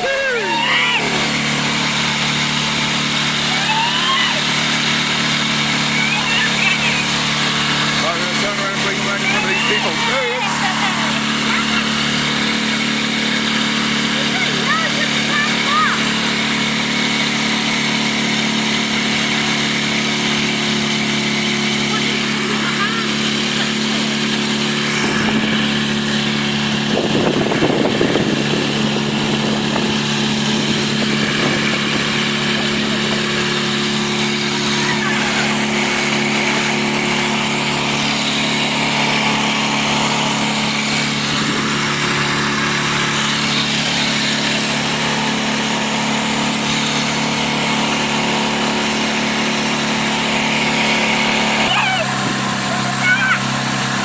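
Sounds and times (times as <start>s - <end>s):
boat engine running: 0.0s - 54.0s
water noise: 0.0s - 54.0s
wind noise: 26.8s - 33.2s.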